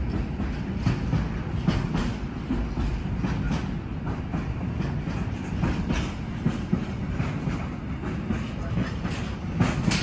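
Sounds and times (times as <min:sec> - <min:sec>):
train rumble: 0:00.0 - 0:10.0
train wheels clattering over rail joints: 0:00.0 - 0:10.0.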